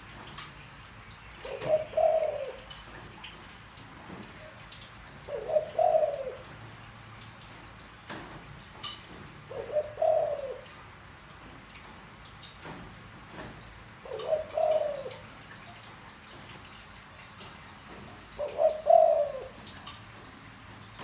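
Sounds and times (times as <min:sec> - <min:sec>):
dove cooing: 0:01.4 - 0:03.2, 0:04.0 - 0:06.8, 0:09.1 - 0:10.9, 0:14.0 - 0:16.4, 0:17.0 - 0:21.0.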